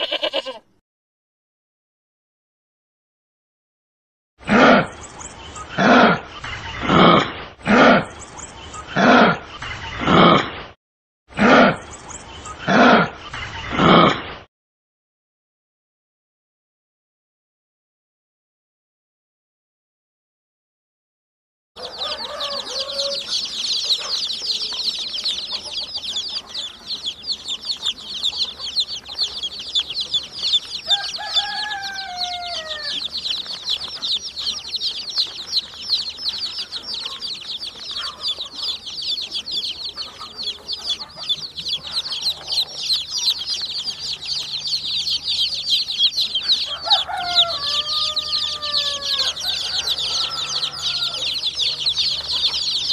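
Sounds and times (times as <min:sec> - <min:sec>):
chicks peeping: 0:04.5 - 0:10.4, 0:11.8 - 0:14.4, 0:21.8 - 0:52.9.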